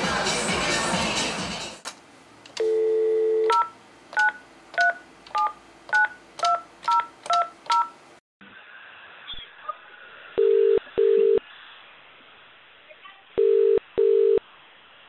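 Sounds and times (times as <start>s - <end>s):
loud music: 0.0s - 1.8s
steady dial tone: 2.6s - 3.7s, 10.4s - 11.4s, 13.4s - 14.4s.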